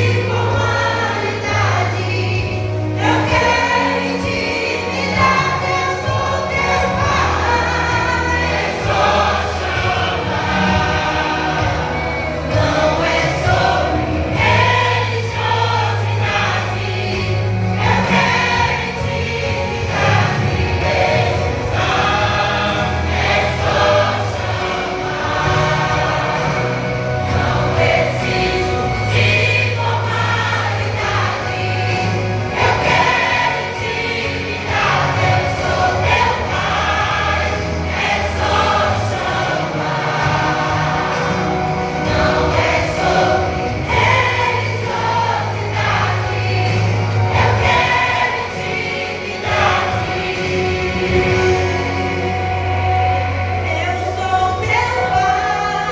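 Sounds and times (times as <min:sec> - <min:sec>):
instrumental accompaniment: 0:00.0 - 0:55.9
vocal group singing in harmony: 0:00.0 - 0:55.9.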